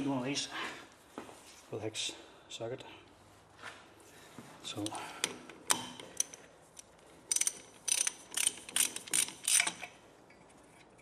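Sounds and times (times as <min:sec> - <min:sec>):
ratchet wrench clicking: 0:07.3 - 0:10.0.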